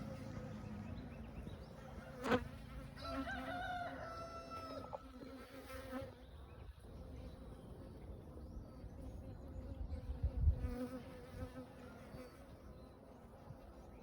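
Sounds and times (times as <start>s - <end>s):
rooster crowing: 3.0s - 5.1s.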